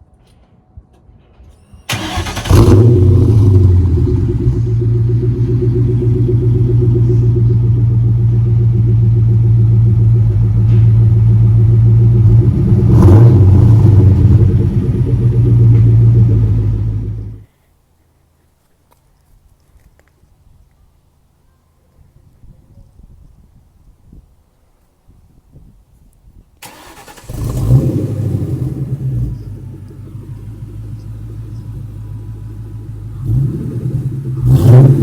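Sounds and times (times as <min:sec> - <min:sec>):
car engine starting and idling: 0:01.8 - 0:17.4, 0:26.6 - 0:35.0.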